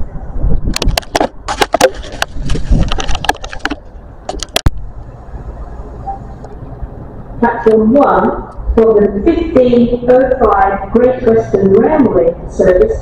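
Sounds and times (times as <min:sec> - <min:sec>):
sharp clicks and knocks: 0:00.6 - 0:04.8
diesel train rumbling: 0:03.6 - 0:13.0.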